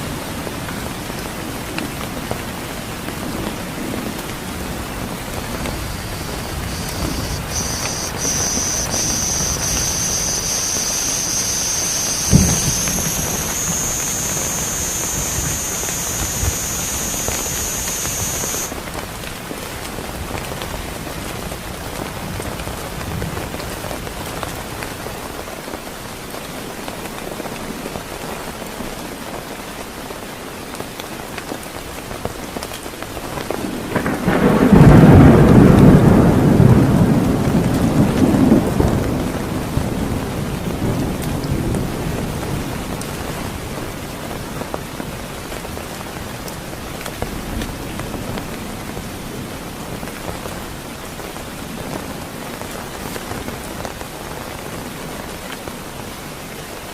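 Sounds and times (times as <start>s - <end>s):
heavy rain falling: 0.0s - 56.9s
high steady whine: 5.4s - 18.8s
thunder rolling: 5.5s - 18.7s, 33.9s - 39.9s.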